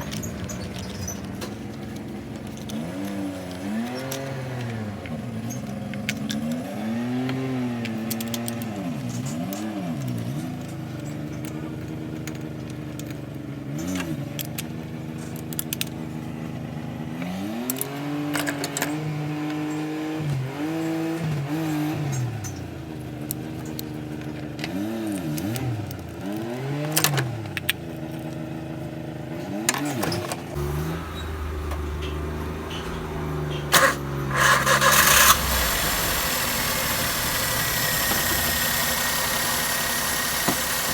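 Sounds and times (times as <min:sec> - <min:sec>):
car engine revving: 0:30.5 - 0:40.9
sharp clicks: 0:30.6 - 0:40.9.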